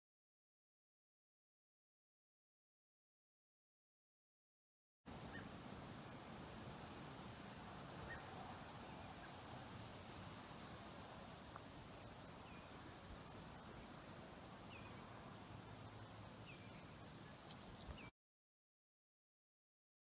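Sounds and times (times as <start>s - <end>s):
faint bird chirps: 5.3s - 5.6s, 7.5s - 9.4s.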